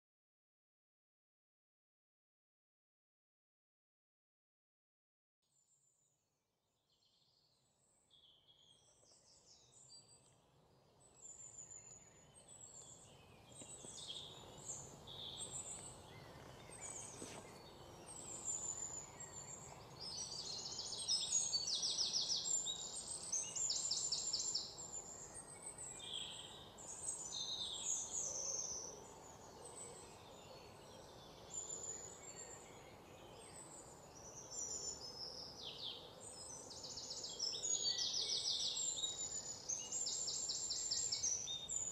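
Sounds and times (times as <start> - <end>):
songbirds chirping and singing: 7.1 - 41.9
steady background hiss: 9.8 - 41.9.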